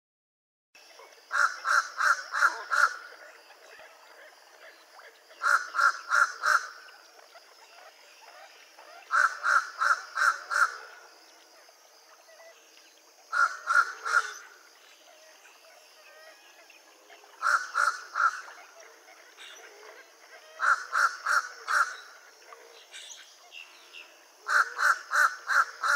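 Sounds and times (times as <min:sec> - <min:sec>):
crow nasal calls: 0:01.3 - 0:03.2, 0:05.4 - 0:06.9, 0:09.0 - 0:11.1, 0:13.3 - 0:14.6, 0:17.4 - 0:18.5, 0:19.4 - 0:22.8, 0:24.4 - 0:25.9.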